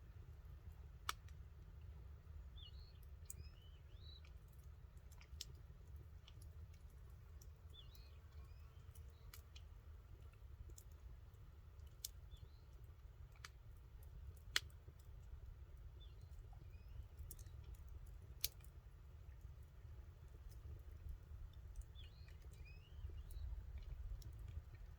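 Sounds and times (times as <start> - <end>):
campfire crackling and popping: 17.1 - 18.8, 19.4 - 24.9.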